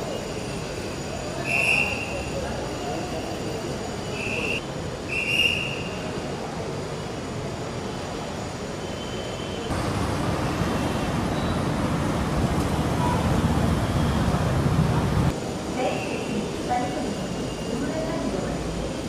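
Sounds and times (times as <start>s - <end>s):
vehicle running noise: 9.7s - 15.4s.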